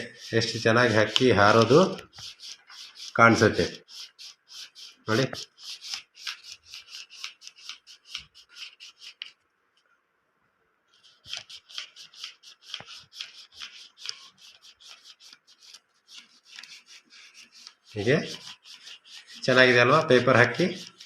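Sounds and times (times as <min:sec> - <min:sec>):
paper rustling: 0:11.0 - 0:19.7.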